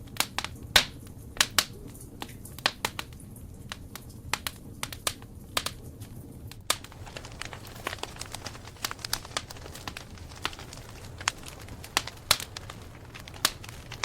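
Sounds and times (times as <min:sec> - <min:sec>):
burning wood crackling and popping: 0:00.0 - 0:14.0
low rumble of flame: 0:00.0 - 0:14.0.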